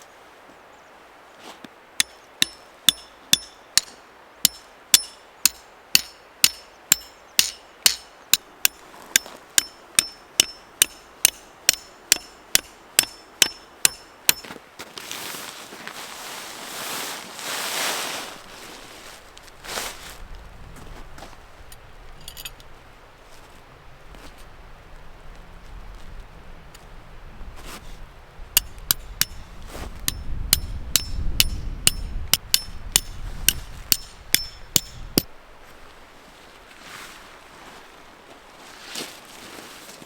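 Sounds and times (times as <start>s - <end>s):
hammer striking metal: 2.0s - 14.5s, 28.6s - 29.5s, 30.1s - 35.3s.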